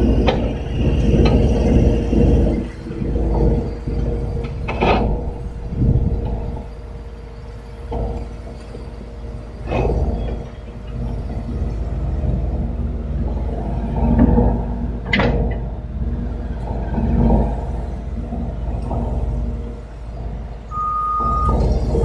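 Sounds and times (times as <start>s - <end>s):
excavator engine rumble: 0.0s - 22.0s.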